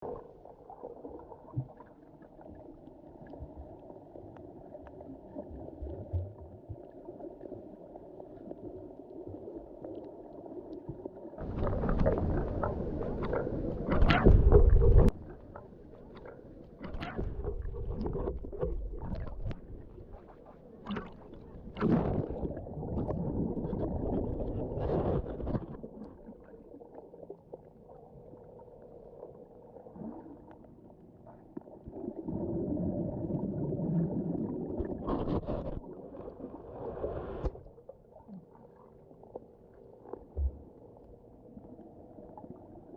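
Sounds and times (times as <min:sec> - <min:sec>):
water rushing and bubbling: 0:00.0 - 0:42.9
muffled underwater hum: 0:11.4 - 0:26.0.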